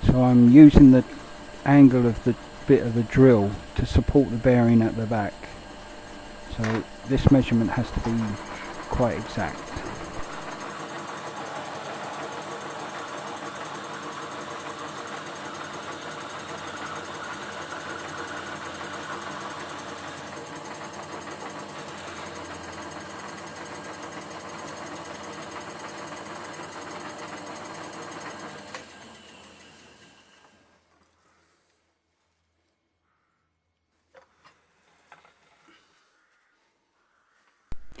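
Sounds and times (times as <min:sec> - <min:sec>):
lathe motor hum: 0:00.0 - 0:31.1
metal cutting noise: 0:01.7 - 0:30.5.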